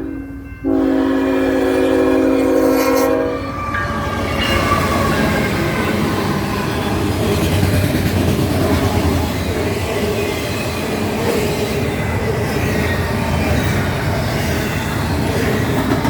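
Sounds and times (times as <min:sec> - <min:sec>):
locomotive horn chord: 0:00.0 - 0:03.7
train wheels rumbling on rails: 0:00.6 - 0:16.0.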